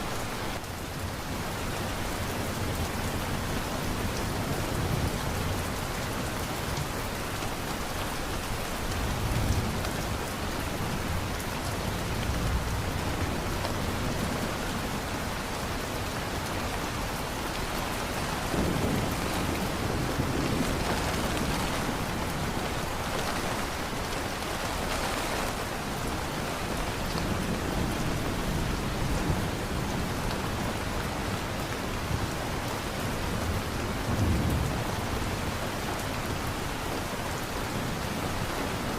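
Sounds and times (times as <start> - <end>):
heavy rain falling: 0.0 - 38.9
thunder rumbling: 18.0 - 30.8.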